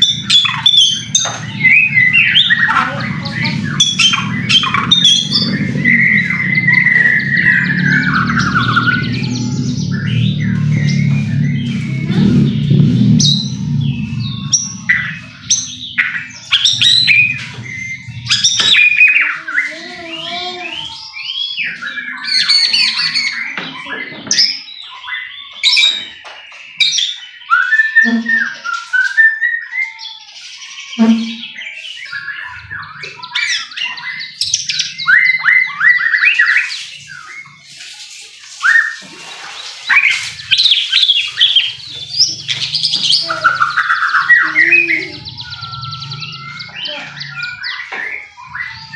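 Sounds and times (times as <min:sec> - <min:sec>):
low drone: 0:00.0 - 0:21.2, 0:40.2 - 0:48.9
bird singing: 0:00.0 - 0:48.9.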